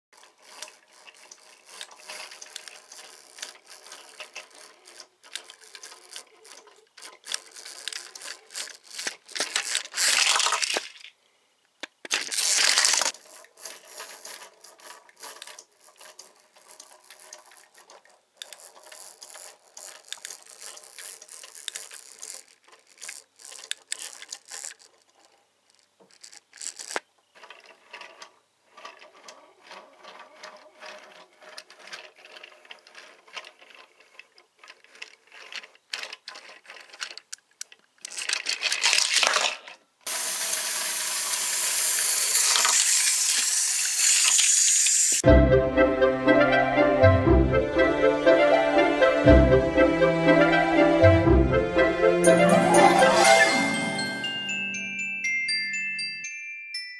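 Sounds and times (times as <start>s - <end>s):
plastic pieces clicking and rattling: 0.2s - 11.2s, 11.8s - 39.8s, 41.8s - 45.2s.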